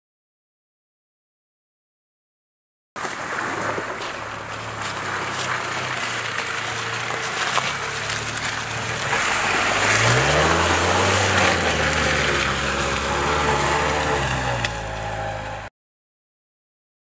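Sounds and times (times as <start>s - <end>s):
car engine revving: 3.1s - 15.7s.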